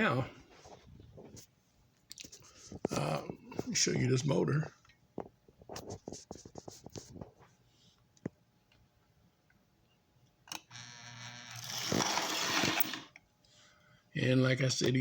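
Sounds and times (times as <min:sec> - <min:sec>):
small electric motor humming: 0:10.6 - 0:13.1
whirring buzz: 0:10.6 - 0:13.2.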